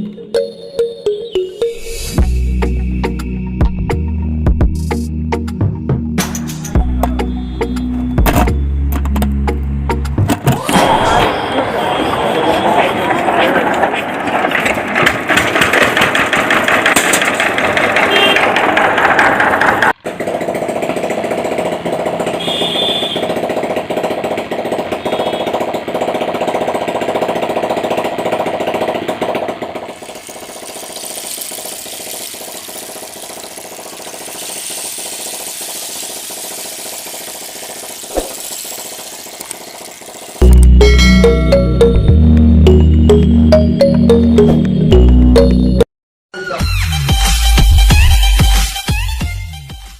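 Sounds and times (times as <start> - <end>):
small motor buzzing: 30.0 - 40.4.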